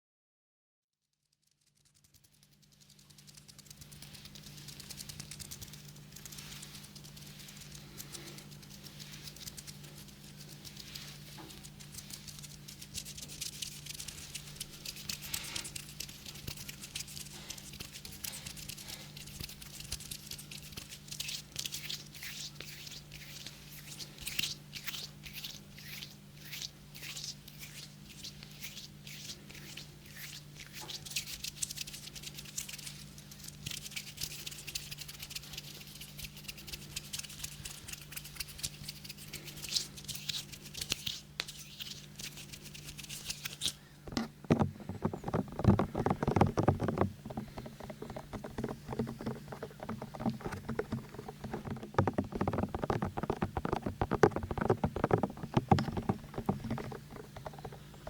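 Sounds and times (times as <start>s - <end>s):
steady low hum: 2.0s - 58.0s
fingers tapping and rubbing microphone: 43.1s - 58.0s.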